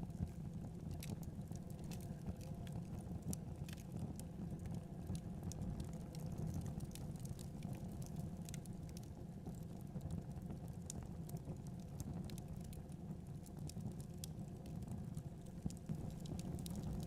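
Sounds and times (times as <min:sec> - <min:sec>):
logs crackling and popping: 0:00.2 - 0:17.0.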